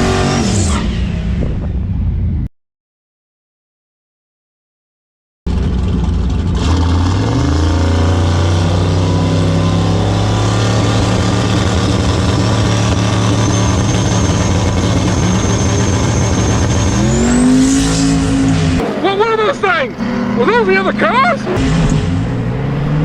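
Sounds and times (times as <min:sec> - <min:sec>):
vehicle engine under load: 0:05.5 - 0:23.0
thin rising whine: 0:10.3 - 0:23.0.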